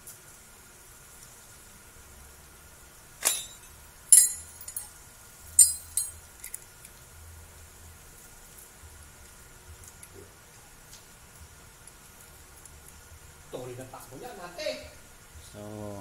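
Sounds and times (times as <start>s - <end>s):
metal tools clinking: 3.2s - 5.0s, 5.6s - 6.6s.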